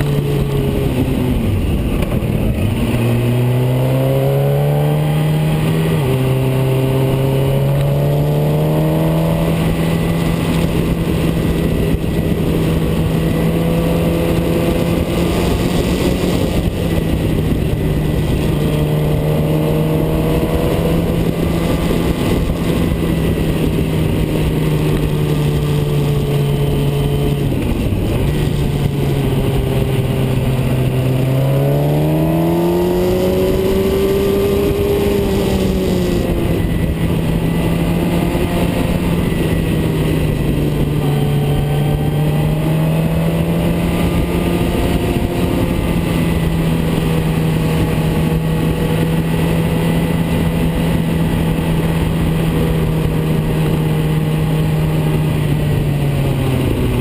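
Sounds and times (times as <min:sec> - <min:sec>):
car engine accelerating: 0:00.0 - 0:57.0
wind and tyre noise: 0:00.0 - 0:57.0.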